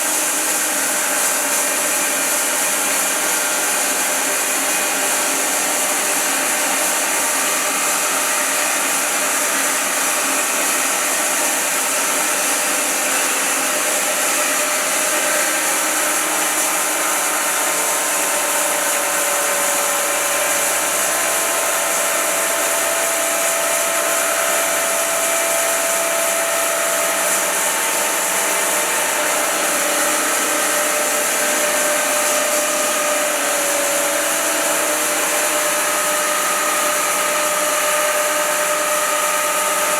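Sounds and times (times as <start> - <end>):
bandsaw mill sawing wood: 0.0 - 39.9.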